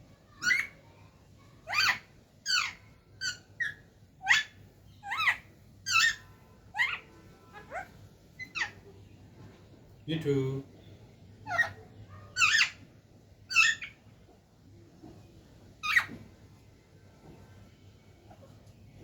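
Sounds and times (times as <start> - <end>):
parrot shrill calls: 0.3 - 0.8, 1.6 - 8.8, 11.4 - 12.9, 13.5 - 14.0, 15.8 - 16.2.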